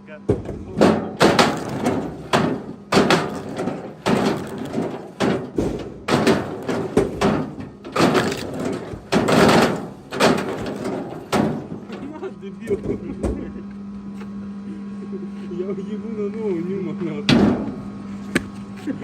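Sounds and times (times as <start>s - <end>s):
firewood knocking together: 0.3s - 12.1s.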